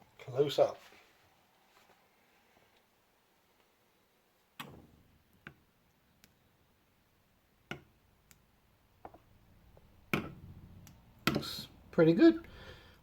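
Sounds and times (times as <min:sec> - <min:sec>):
faint irregular clicks and knocks: 0:04.6 - 0:06.5, 0:07.6 - 0:11.7.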